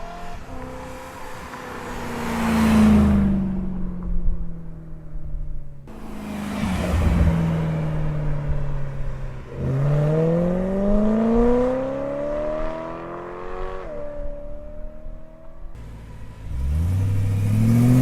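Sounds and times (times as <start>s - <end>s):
car passing by: 0.0s - 3.5s, 5.9s - 13.9s
car engine accelerating: 5.9s - 18.0s.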